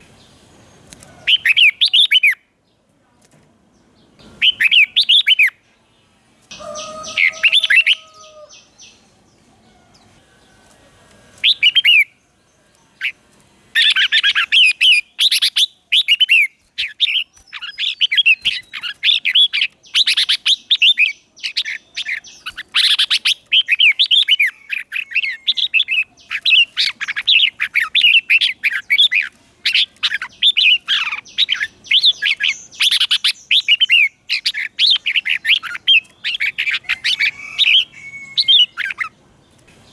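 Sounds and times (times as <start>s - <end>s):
bird singing chirps and whistles: 1.3s - 2.4s, 4.3s - 5.6s, 11.4s - 12.1s, 13.8s - 39.1s.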